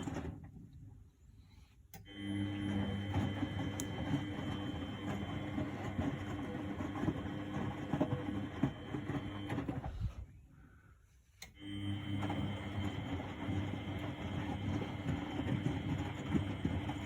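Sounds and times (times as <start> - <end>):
laundry churning in drum: 0.0 - 0.6, 2.4 - 10.2, 11.9 - 17.0
washing machine motor whine: 0.0 - 0.6, 2.0 - 10.4, 11.4 - 17.0.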